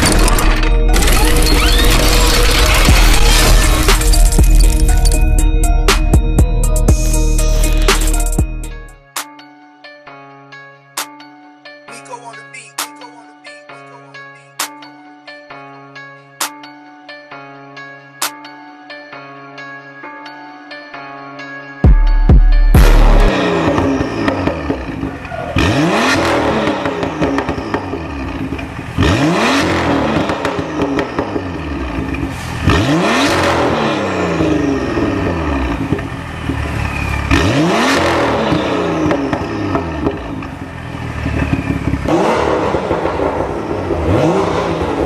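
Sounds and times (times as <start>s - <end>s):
car engine revving: 0.0s - 5.3s, 22.7s - 45.0s.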